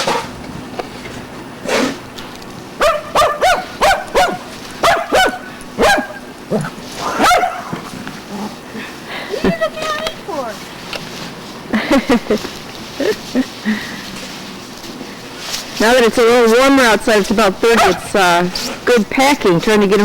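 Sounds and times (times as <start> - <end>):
dog barking: 2.8 - 7.8, 17.8 - 18.1.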